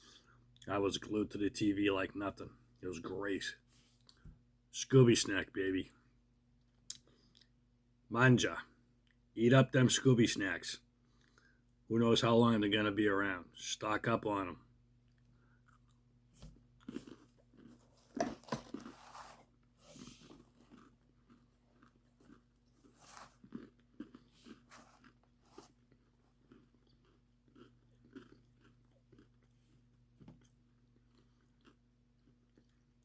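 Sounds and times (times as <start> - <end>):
person chewing crunchy crackers: 15.0 - 33.0.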